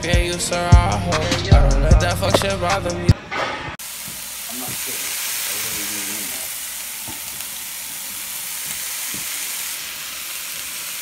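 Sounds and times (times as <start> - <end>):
meat sizzling in a frying pan: 3.8 - 11.0.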